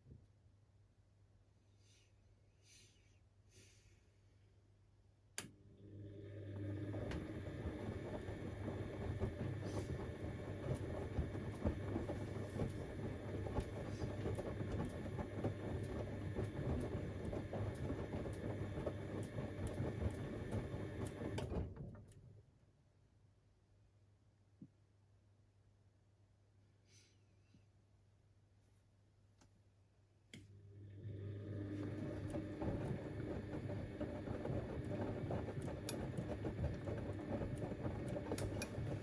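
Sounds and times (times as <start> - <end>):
washing machine motor humming: 5.7 - 21.8, 30.5 - 39.0.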